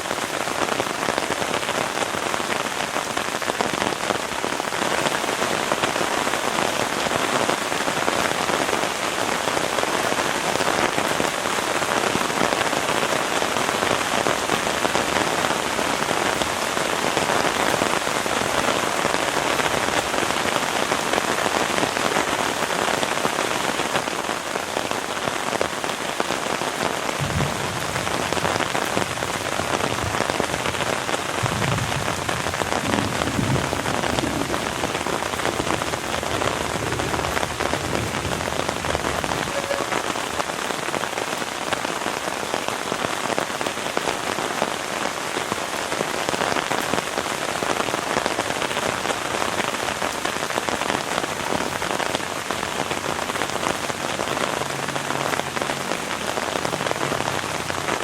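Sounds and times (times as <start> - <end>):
heavy rain falling: 0.0 - 58.0
dull low thumps: 27.2 - 35.0.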